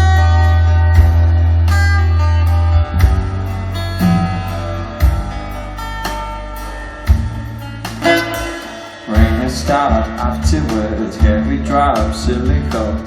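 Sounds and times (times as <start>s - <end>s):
plucked guitar notes: 0.0s - 11.7s
deep bass notes: 0.0s - 13.0s.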